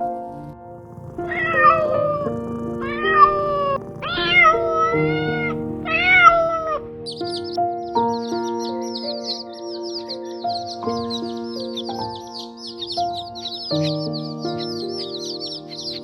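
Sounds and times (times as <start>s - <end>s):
cat meowing: 0.9s - 6.8s.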